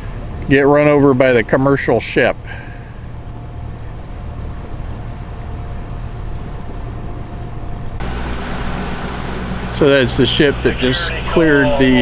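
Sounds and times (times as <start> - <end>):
boat diesel engines humming: 0.0 - 12.0
wind and water noise: 0.0 - 12.0
loud hiss: 8.0 - 12.0.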